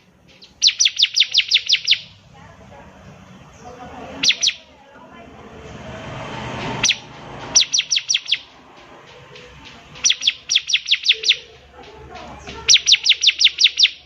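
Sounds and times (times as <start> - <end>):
rushing background noise: 0.0 - 14.0
bird singing high notes: 0.3 - 2.2, 4.2 - 4.7, 6.8 - 11.6, 12.6 - 14.0.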